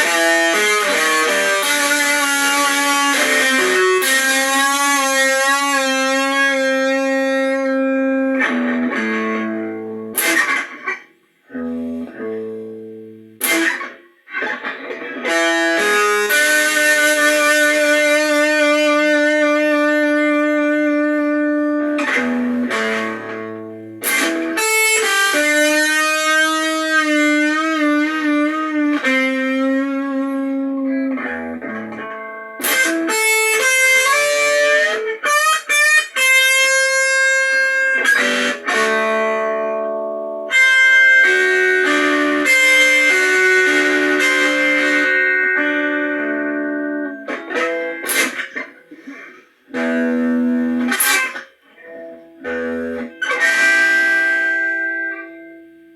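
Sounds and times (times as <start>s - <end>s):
blues guitar: 0.0s - 55.9s.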